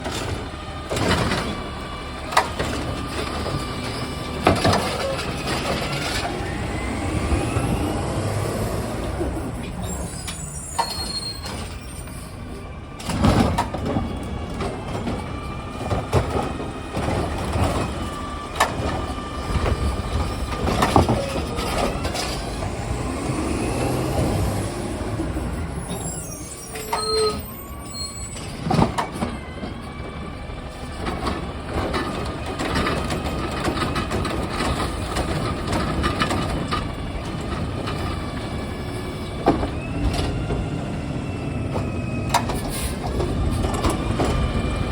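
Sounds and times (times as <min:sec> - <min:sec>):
loud bangs and clunks: 0:00.0 - 0:08.5, 0:12.9 - 0:25.6
whining hydraulics: 0:00.0 - 0:44.9.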